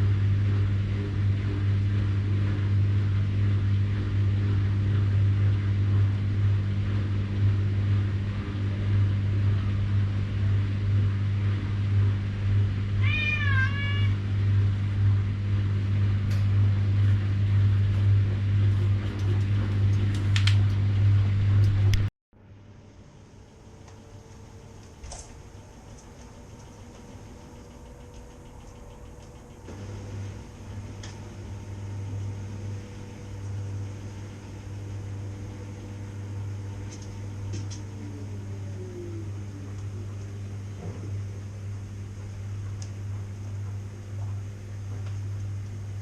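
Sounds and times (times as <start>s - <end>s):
washing machine humming: 0.0s - 46.0s
cat meowing: 13.0s - 14.2s.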